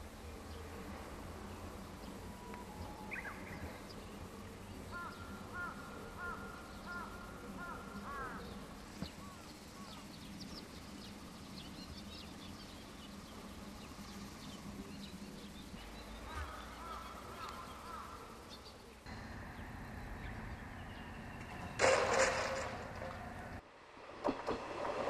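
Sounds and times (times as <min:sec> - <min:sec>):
faint low hum: 0:00.0 - 0:25.0
bird call notes: 0:02.1 - 0:10.0.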